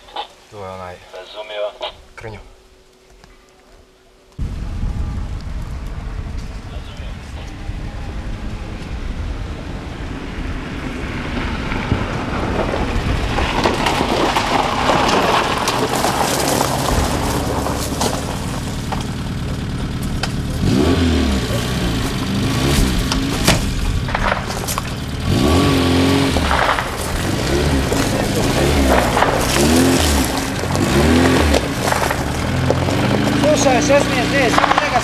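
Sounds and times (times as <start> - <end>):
car engine revving: 4.4 - 35.0
sharp crack: 11.7 - 35.0.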